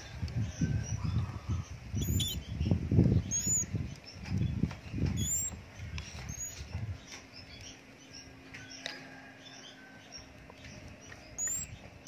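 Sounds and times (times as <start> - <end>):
faint small bird calls: 0.0 - 12.0
high-pitched bird chirps: 0.9 - 4.2, 5.0 - 6.7, 11.2 - 11.8.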